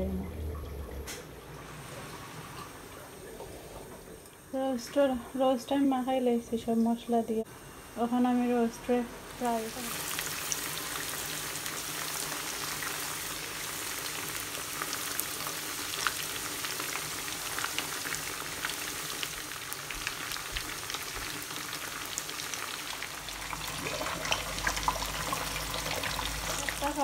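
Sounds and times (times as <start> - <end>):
chicken frying in hot oil: 7.6 - 27.0.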